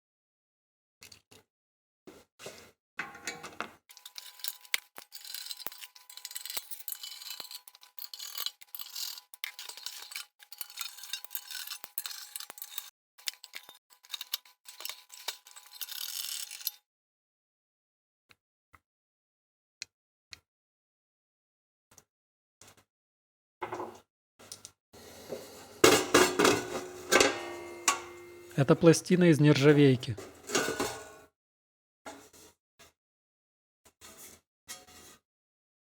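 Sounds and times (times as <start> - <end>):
metal toaster parts rattling: 3.0 - 16.8, 25.4 - 31.2
faint steady tone: 26.4 - 28.8.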